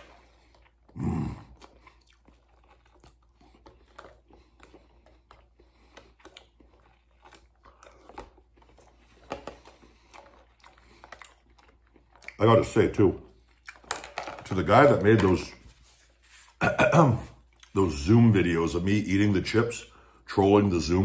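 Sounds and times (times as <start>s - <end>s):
man chewing food: 0.0s - 18.1s.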